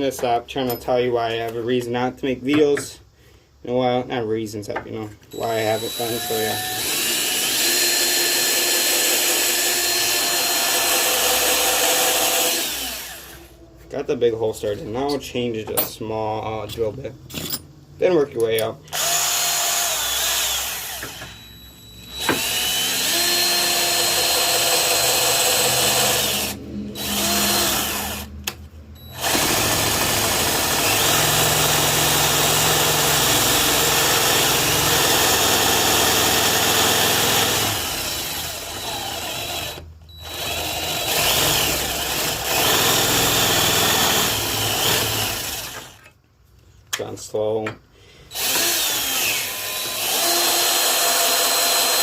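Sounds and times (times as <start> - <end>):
electric drill boring: 5.3 - 13.5, 18.9 - 28.3, 29.0 - 46.0, 48.3 - 52.0.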